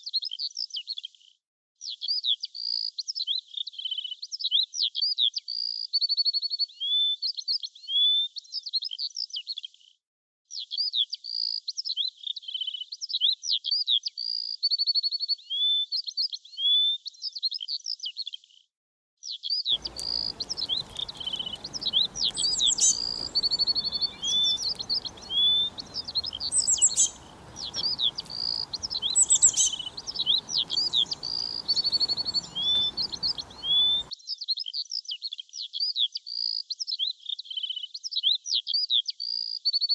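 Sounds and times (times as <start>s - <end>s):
songbirds chirping: 19.7s - 34.1s
faint background hiss: 19.8s - 34.1s.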